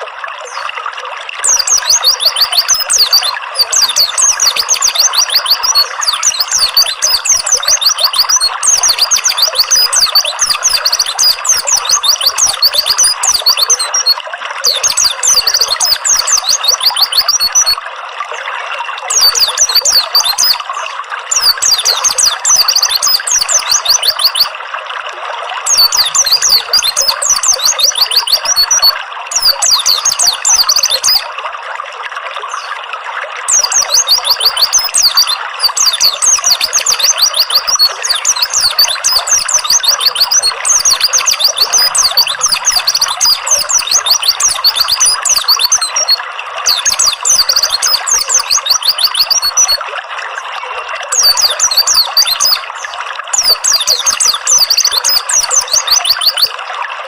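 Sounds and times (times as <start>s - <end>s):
water trickling: 0.0s - 57.0s
songbird chirping: 1.4s - 17.8s, 19.1s - 24.6s, 25.7s - 31.3s, 33.5s - 49.8s, 51.1s - 56.5s.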